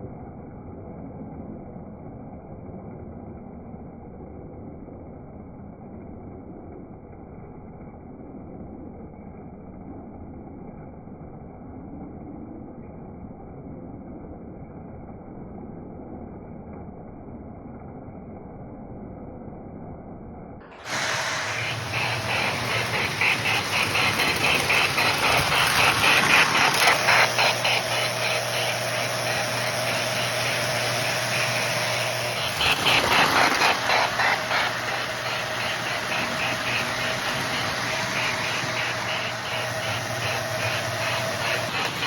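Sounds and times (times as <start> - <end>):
model train steam chuffing: 20.7 - 42.0
motor hum: 20.7 - 42.0
wheels rumbling on track: 20.7 - 42.0.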